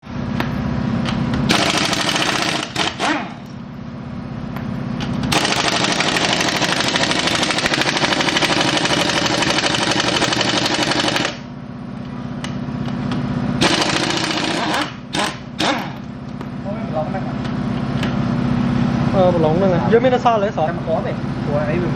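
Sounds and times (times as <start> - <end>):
steady low hum: 0.0 - 21.9
impact wrench hammering: 0.4 - 3.6, 5.0 - 11.5, 12.4 - 16.5.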